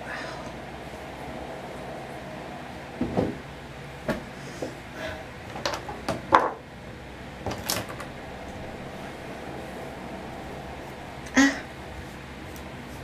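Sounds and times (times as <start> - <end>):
objects knocking and clattering: 5.5 - 6.6.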